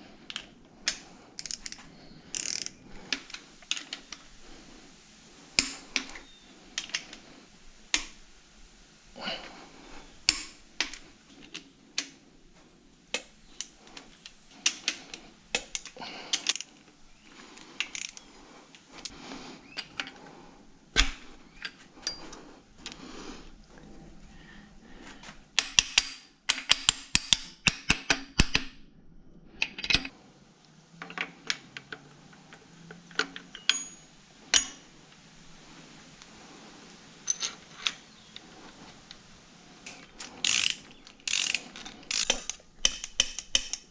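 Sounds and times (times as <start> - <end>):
hand tools and fasteners clinking: 0.3 - 8.3, 9.2 - 12.2, 13.1 - 20.3, 20.9 - 23.0, 25.0 - 28.7, 31.0 - 35.2, 37.2 - 39.2, 39.8 - 43.9.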